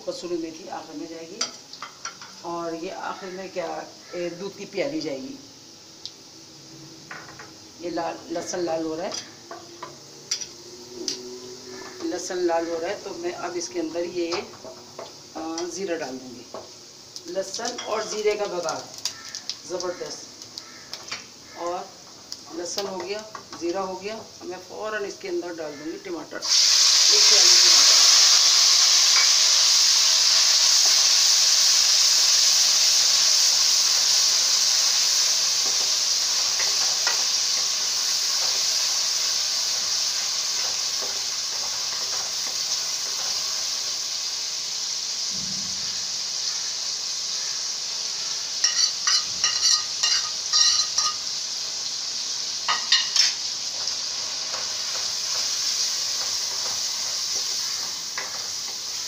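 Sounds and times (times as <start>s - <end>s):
tomatoes sizzling in hot oil: 0.0s - 59.0s
metal spoon scraping a pot: 48.6s - 51.2s.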